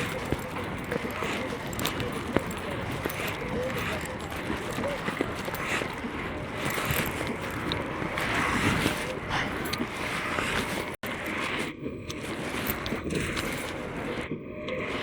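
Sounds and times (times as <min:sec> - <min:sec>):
skate wheels rolling on pavement: 0:00.0 - 0:15.0.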